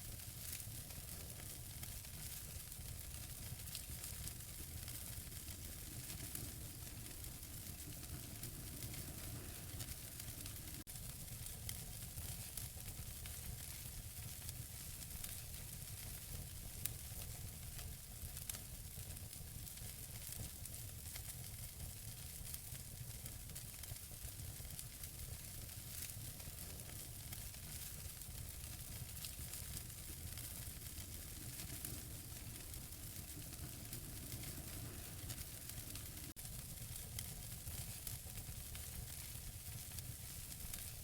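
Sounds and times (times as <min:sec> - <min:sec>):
wood fire crackling: 0:00.0 - 0:41.0
fire hissing: 0:00.3 - 0:12.6, 0:24.6 - 0:41.0.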